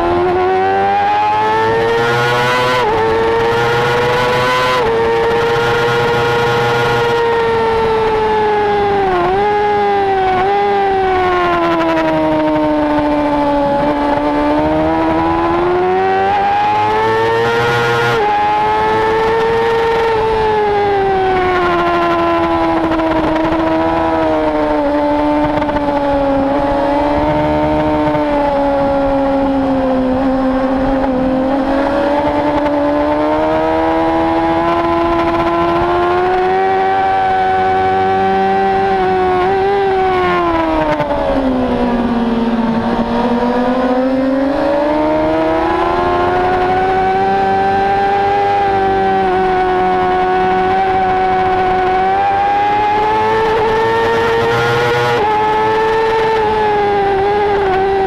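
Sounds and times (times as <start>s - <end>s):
motorcycle engine at high revs: 0.0s - 58.0s
wind rush: 18.2s - 58.0s.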